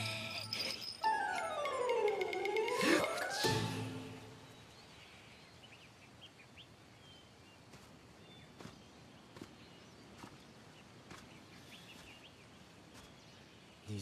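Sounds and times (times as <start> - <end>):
small birds chirping: 4.0 - 14.0.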